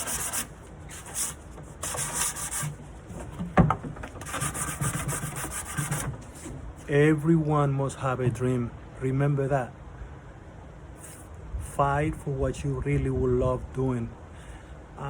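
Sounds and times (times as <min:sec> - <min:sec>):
sandpaper rubbing on wood: 0:00.0 - 0:02.8, 0:04.2 - 0:06.5.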